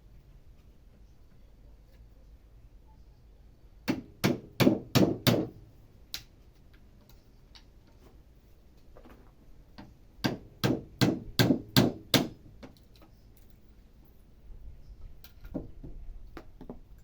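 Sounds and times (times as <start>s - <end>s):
hammer striking wood: 3.9s - 5.6s, 10.2s - 12.4s.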